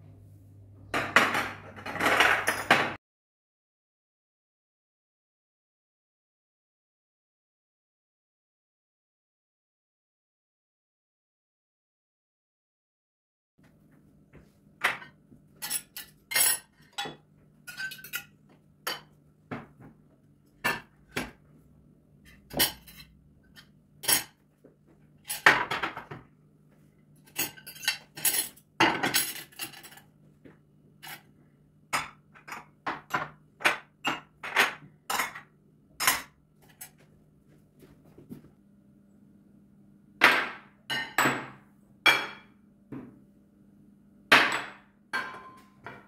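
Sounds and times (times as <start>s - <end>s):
dishes and cutlery clinking: 1.0s - 3.0s, 14.8s - 19.7s, 22.3s - 24.4s, 25.2s - 26.2s, 27.2s - 30.1s, 31.0s - 31.3s, 32.0s - 37.0s, 40.9s - 42.5s, 44.5s - 46.0s.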